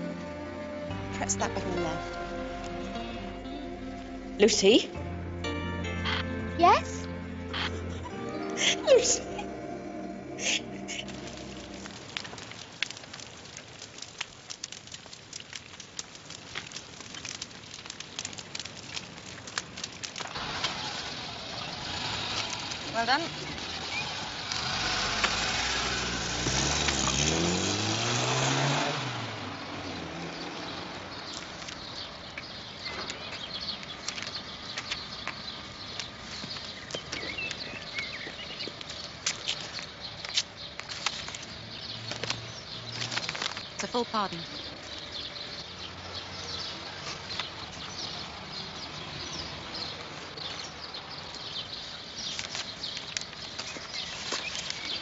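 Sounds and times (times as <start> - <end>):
car engine accelerating: 0.0 - 12.4, 20.4 - 31.2
small birds chirping: 6.0 - 20.2, 21.4 - 25.6, 30.4 - 55.0.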